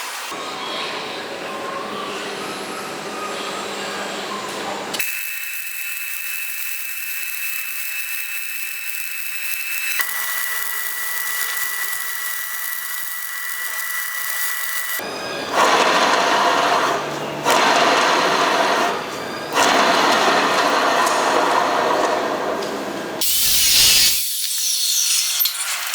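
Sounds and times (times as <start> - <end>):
power tool whining: 2.4 - 25.9
rough machining bursts: 8.8 - 22.0.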